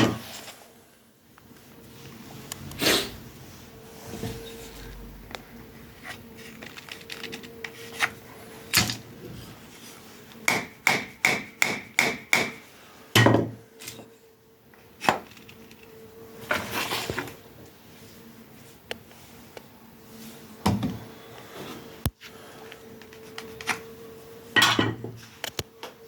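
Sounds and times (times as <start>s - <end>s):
hammer tapping on wood: 10.5s - 12.6s.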